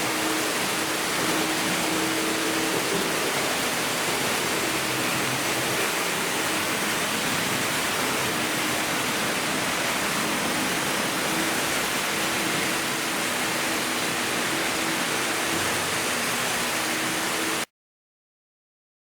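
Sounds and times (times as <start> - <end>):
faint motor hum: 0.0 - 17.6.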